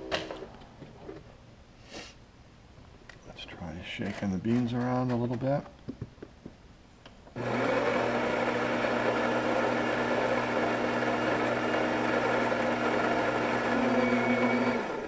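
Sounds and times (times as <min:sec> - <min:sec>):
coffee grinder grinding: 0:07.4 - 0:15.0.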